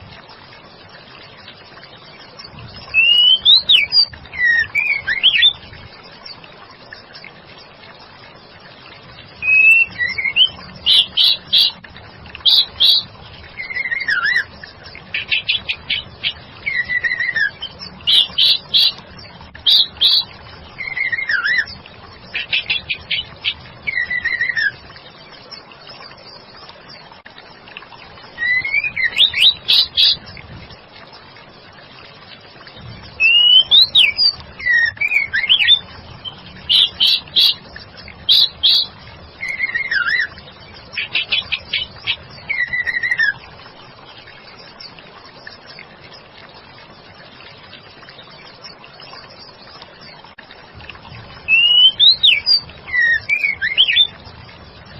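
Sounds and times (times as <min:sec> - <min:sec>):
bird whistled song: 0:02.9 - 0:05.6, 0:09.4 - 0:11.8, 0:12.4 - 0:14.5, 0:15.1 - 0:19.0, 0:19.6 - 0:24.8, 0:28.4 - 0:30.2, 0:33.2 - 0:37.6, 0:38.2 - 0:40.4, 0:41.0 - 0:43.4, 0:51.4 - 0:54.1.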